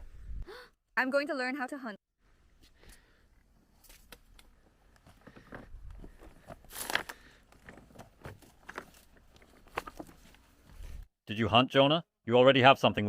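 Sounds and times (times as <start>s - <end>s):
crunching and rustling: 5.0s - 11.0s.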